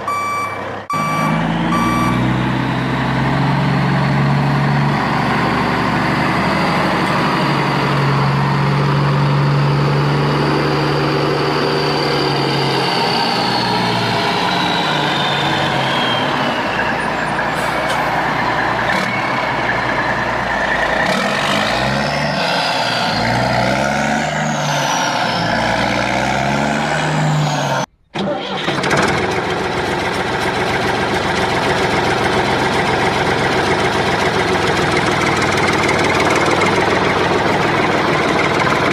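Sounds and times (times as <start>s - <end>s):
vehicle engine revving: 0.0s - 27.9s.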